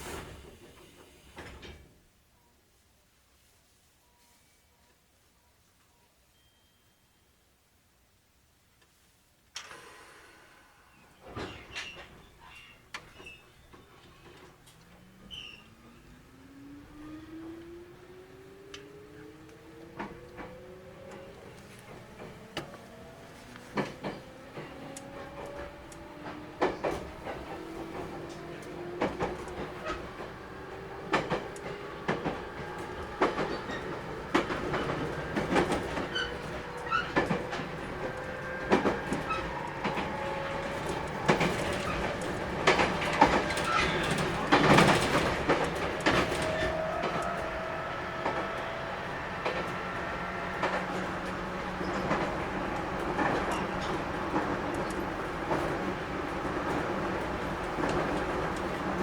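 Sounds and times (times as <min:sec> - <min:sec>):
wheels clicking over rail joints: 0:11.2 - 0:59.0
electric train motors whining: 0:13.6 - 0:59.0.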